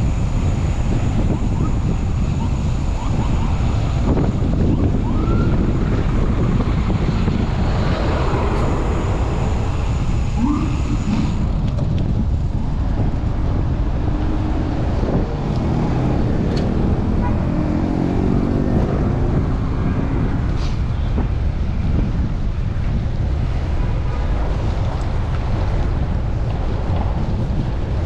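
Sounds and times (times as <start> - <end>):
wind buffeting microphone: 0.0 - 28.0
short rising traffic tones: 7.6 - 11.6.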